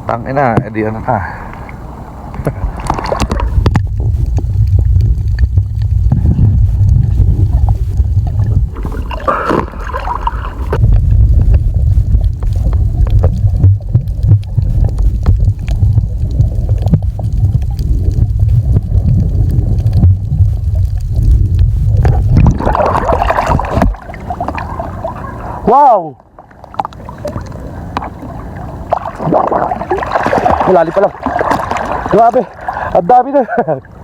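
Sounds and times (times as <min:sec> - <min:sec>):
muffled underwater rumble: 0:00.0 - 0:34.0
underwater clicks and gurgling: 0:01.5 - 0:34.0.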